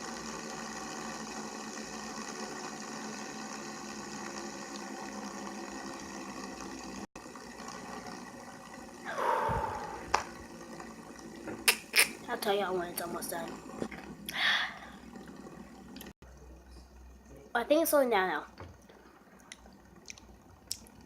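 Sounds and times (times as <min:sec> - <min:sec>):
fidget spinner whirring: 0:00.0 - 0:21.0.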